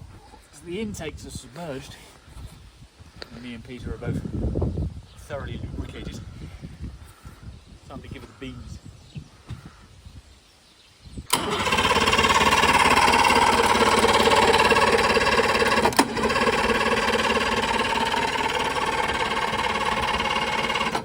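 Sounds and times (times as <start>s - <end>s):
outboard engine cranking on starter: 11.3s - 21.0s.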